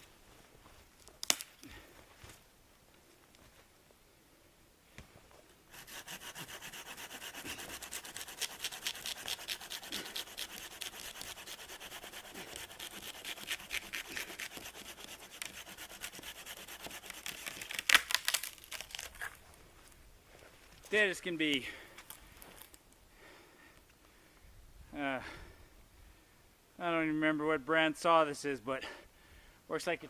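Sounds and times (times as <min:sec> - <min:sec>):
loud sharp wood cracks: 0:01.2 - 0:01.6, 0:17.0 - 0:19.4
hand saw cutting wood: 0:05.7 - 0:18.1.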